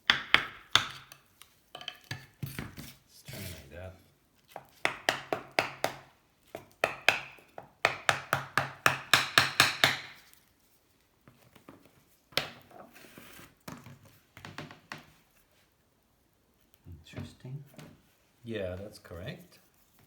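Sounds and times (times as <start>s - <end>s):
hammer tapping wedges: 4.6s - 10.2s.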